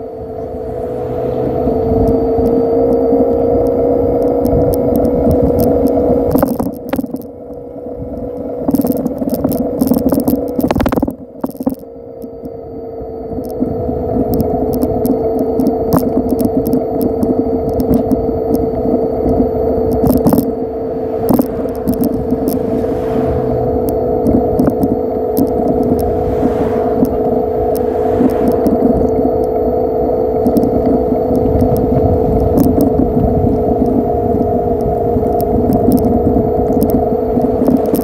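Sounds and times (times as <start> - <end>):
bike rattles and clicks: 0.0 - 12.6, 13.2 - 38.0
electric bike motor whine: 0.0 - 38.0.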